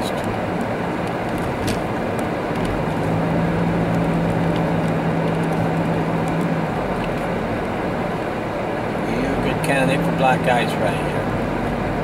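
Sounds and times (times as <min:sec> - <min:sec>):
car engine running: 0:00.0 - 0:12.0
low steady hum: 0:00.0 - 0:12.0
tyre and road noise: 0:00.0 - 0:12.0.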